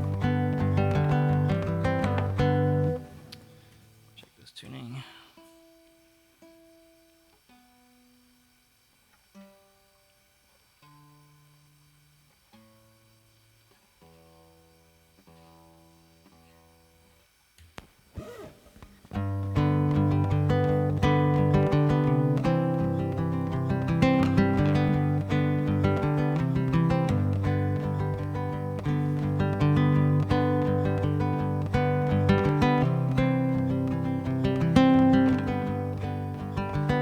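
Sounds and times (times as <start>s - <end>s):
guitar strings plucked: 0.0s - 4.2s, 18.9s - 37.0s
acoustic guitar strumming: 0.0s - 4.4s, 5.2s - 17.1s, 18.2s - 37.0s.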